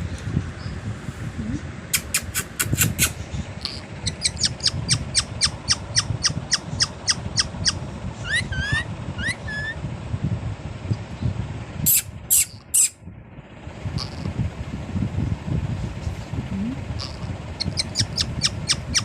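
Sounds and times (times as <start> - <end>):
parrot shrill calls: 3.7 - 9.8, 17.0 - 19.0
parrot rising whistles: 4.1 - 9.8.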